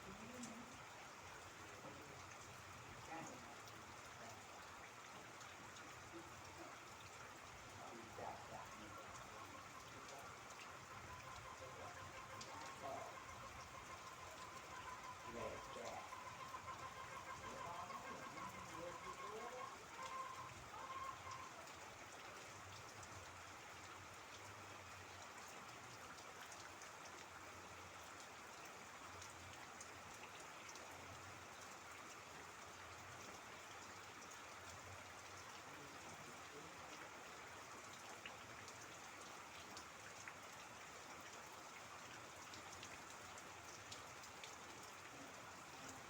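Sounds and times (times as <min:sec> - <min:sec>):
raindrops ticking: 0:00.0 - 0:46.0
steady rain: 0:00.0 - 0:46.0.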